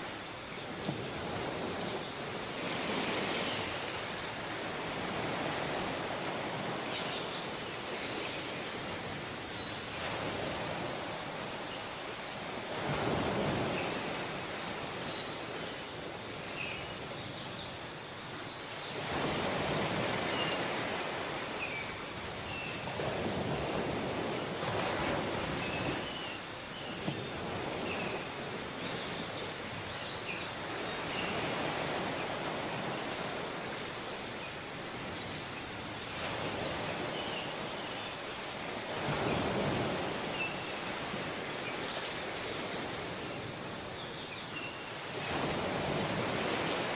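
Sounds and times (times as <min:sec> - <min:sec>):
waves washing onto beach: 0:00.0 - 0:46.9.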